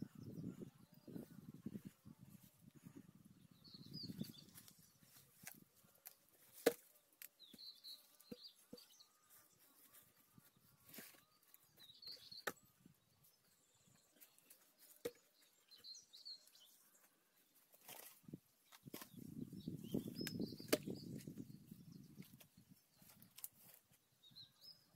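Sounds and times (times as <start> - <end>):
small bird chirping: 3.4 - 5.3, 7.4 - 17.1, 18.7 - 24.9.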